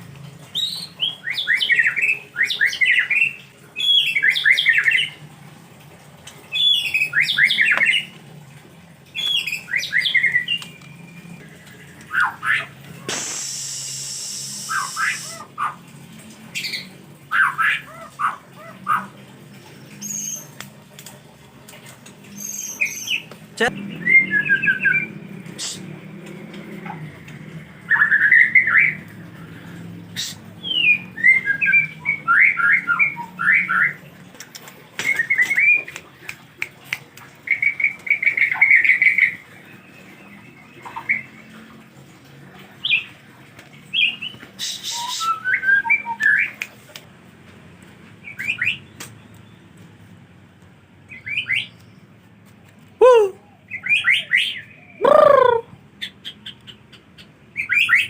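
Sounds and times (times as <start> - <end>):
loud downward-sliding bird calls: 12.1 - 15.8, 53.0 - 55.8
songbird chirping: 51.1 - 58.0.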